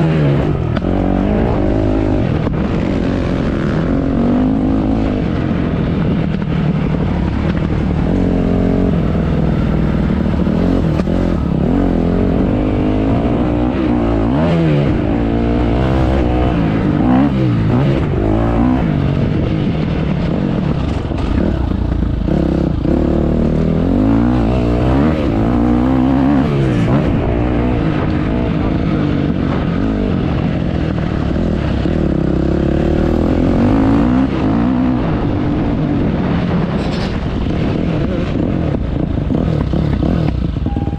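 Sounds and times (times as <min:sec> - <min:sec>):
motocross bike engine revving: 0:08.0 - 0:19.5, 0:20.3 - 0:30.6.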